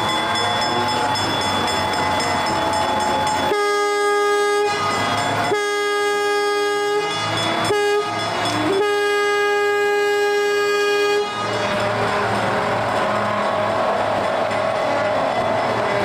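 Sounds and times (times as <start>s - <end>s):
running train rushing noise: 0.0s - 16.0s
locomotive whistle blasts: 3.4s - 12.0s.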